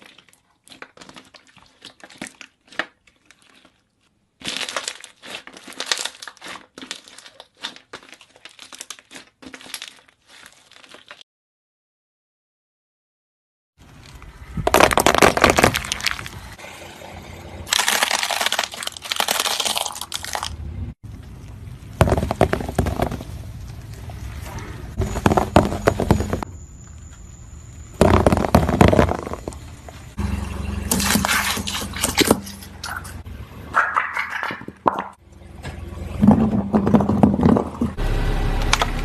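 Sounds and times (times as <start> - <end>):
slime squishing and popping: 4.4 - 11.2, 17.7 - 20.5.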